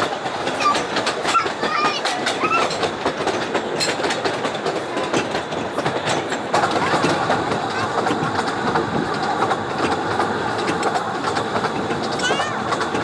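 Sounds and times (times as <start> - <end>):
train wheels clicking over rail joints: 0.0 - 13.0.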